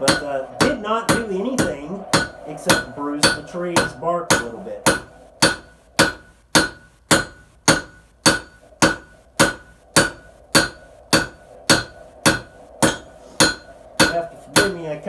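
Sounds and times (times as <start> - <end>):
hammer striking metal on anvil: 0.0 - 15.0.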